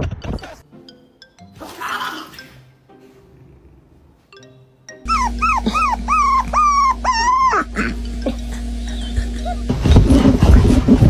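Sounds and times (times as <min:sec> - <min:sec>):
dog whining and yowling: 0:05.1 - 0:09.7.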